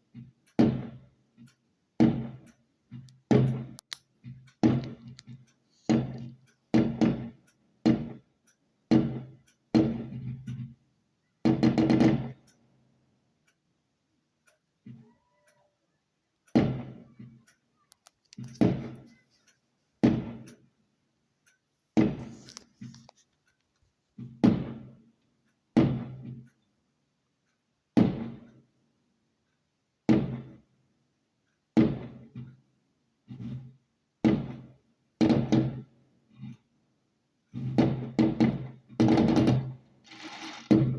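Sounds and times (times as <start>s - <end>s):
fireworks bangs: 2.0s - 2.4s, 16.6s - 17.0s, 37.8s - 40.9s.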